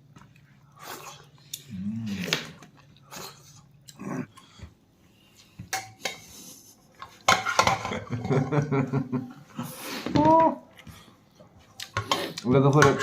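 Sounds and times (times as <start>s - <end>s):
person chewing: 0.2s - 5.6s, 10.7s - 12.5s
person humming: 1.6s - 2.4s
dishes and utensils clinking: 5.7s - 6.5s, 7.2s - 8.8s, 11.9s - 13.0s.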